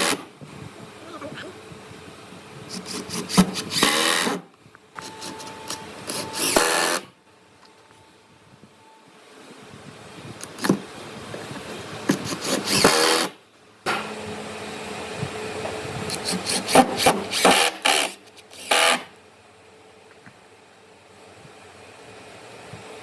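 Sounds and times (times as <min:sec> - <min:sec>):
hand tool scraping wood: 0:02.7 - 0:04.4, 0:05.0 - 0:07.0, 0:12.0 - 0:13.3, 0:16.1 - 0:19.1.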